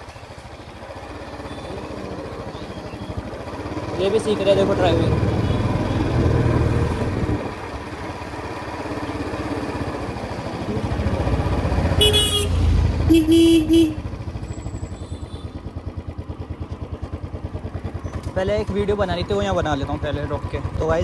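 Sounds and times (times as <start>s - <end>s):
motorcycle engine running: 0.0s - 21.0s
vehicle horn beeps: 1.4s - 1.8s, 5.3s - 6.2s, 11.9s - 15.6s.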